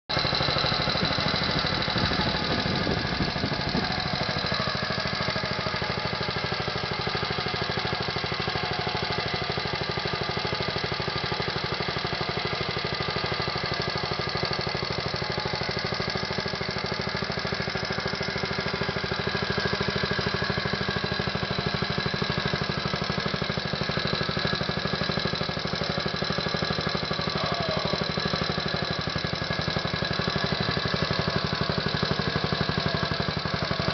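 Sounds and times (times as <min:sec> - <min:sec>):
engine running steadily: 0:00.1 - 0:33.9.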